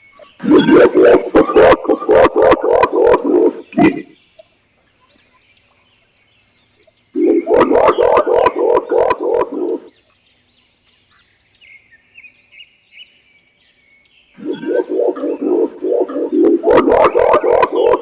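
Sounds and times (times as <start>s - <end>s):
pigeon cooing: 0.4s - 4.1s, 7.2s - 9.9s, 14.4s - 18.0s
small bird chirping faintly: 13.8s - 18.0s.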